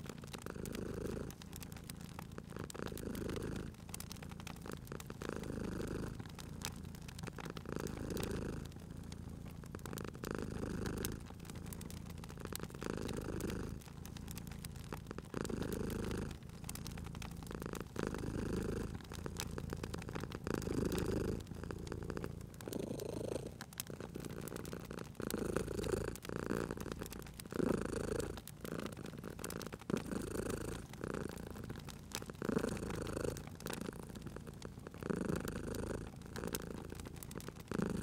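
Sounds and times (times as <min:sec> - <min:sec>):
cat purring: 0:00.0 - 0:38.0
wood fire crackling: 0:00.0 - 0:38.0.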